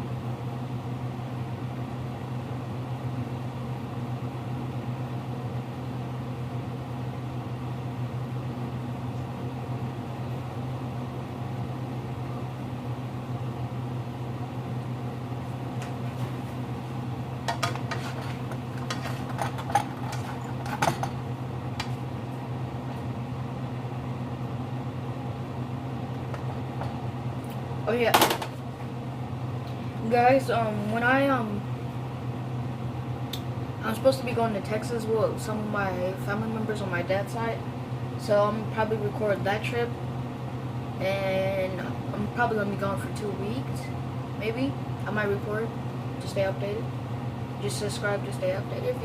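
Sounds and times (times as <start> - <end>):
kitchen appliance humming: 0.0 - 49.0
kitchenware clinking: 17.5 - 21.2.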